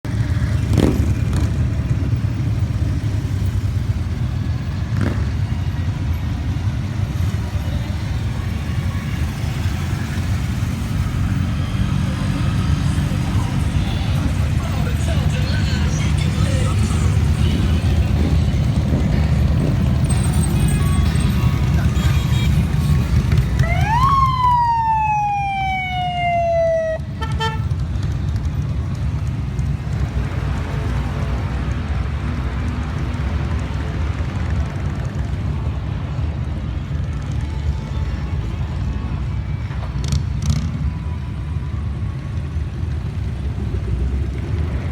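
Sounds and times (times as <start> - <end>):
motorcycle passing by: 0.1 - 3.4, 4.8 - 5.7
motorcycle engines rumbling: 0.1 - 44.9
vehicle siren wailing: 20.3 - 28.1, 38.7 - 43.6.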